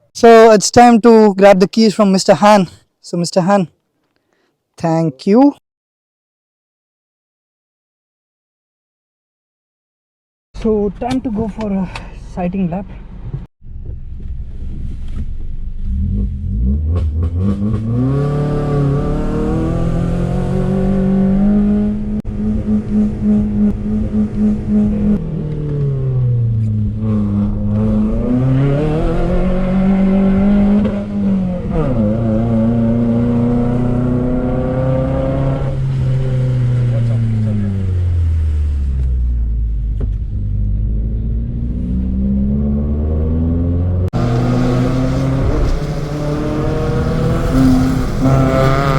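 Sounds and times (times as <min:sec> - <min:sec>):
car engine accelerating: 0:13.0 - 0:48.9.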